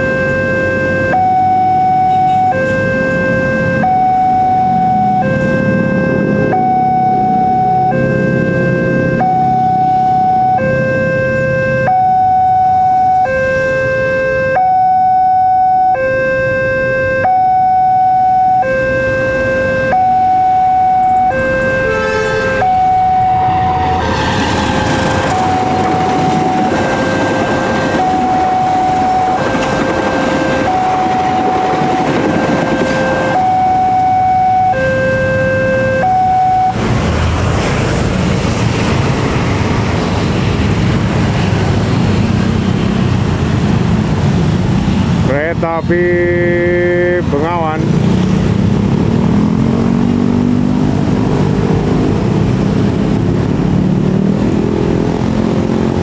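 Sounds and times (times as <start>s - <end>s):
level crossing two-tone alarm: 0.0s - 24.0s, 25.2s - 36.8s
passing train: 1.1s - 13.7s, 19.4s - 56.0s.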